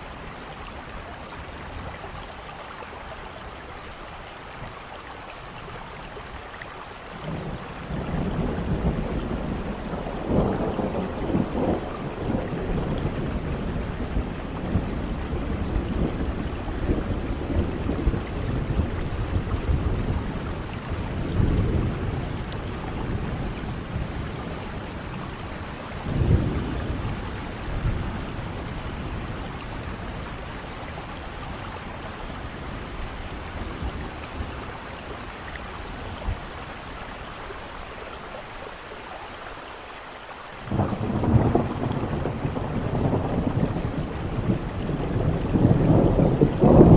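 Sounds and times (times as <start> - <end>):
steady rain: 0.0 - 46.9
rolling thunder: 7.2 - 36.6, 40.6 - 46.9.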